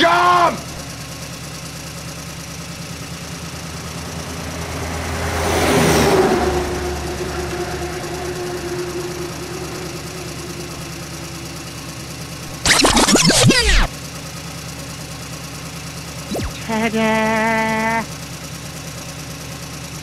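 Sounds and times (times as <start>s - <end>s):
simulated truck engine: 0.0s - 20.0s.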